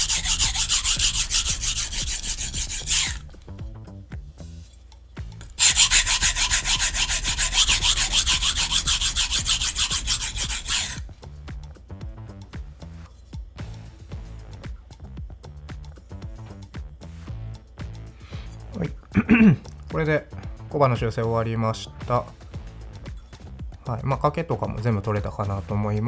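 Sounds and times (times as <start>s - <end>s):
knife grinding on sharpening stone: 0.0s - 3.5s, 5.4s - 11.1s
faint background music: 0.0s - 10.4s, 11.0s - 26.0s.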